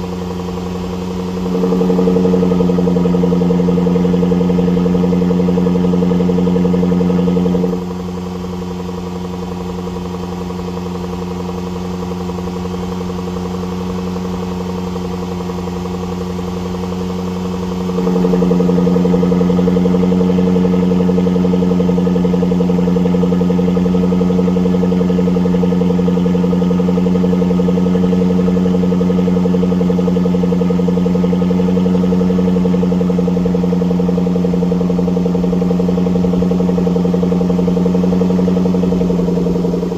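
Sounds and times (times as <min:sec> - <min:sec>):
car engine exhaust at steady speed: 0:00.0 - 0:39.9.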